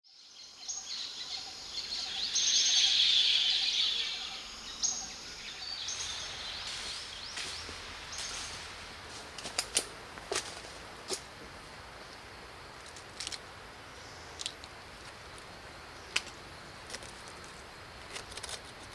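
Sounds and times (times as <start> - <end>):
birds chirping and calling: 0.6 - 9.8.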